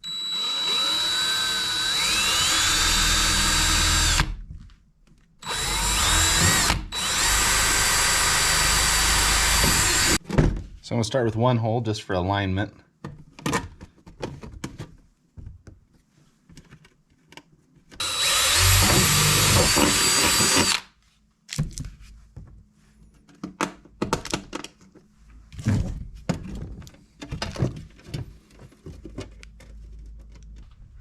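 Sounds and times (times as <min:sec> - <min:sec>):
power drill boring through metal: 0:00.0 - 0:04.4, 0:05.4 - 0:10.2, 0:18.0 - 0:20.8.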